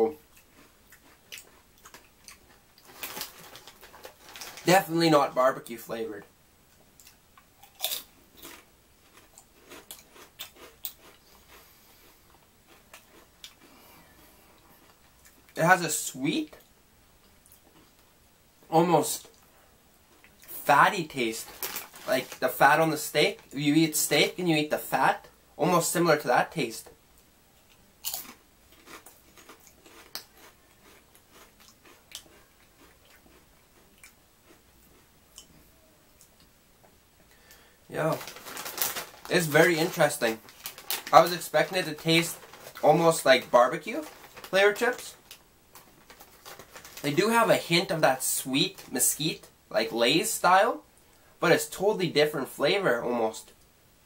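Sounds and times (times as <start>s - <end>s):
potato chips crunching: 0.3s - 5.0s, 7.0s - 11.7s, 12.7s - 13.7s, 20.2s - 24.1s, 28.0s - 35.5s, 37.5s - 49.2s.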